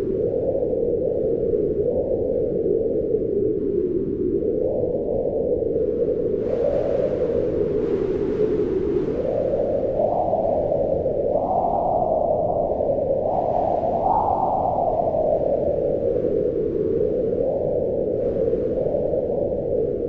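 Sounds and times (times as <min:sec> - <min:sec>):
howling wind: 0:00.0 - 0:20.0.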